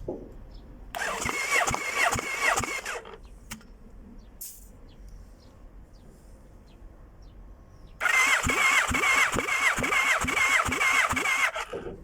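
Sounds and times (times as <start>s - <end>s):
electric starter cranking engine: 1.0s - 3.2s, 8.0s - 12.0s.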